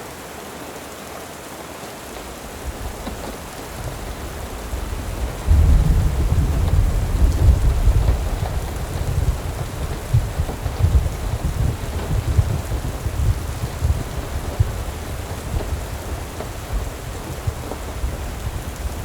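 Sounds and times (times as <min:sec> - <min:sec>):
steady rain: 0:00.0 - 0:19.0
thunder rumbling: 0:02.4 - 0:19.0.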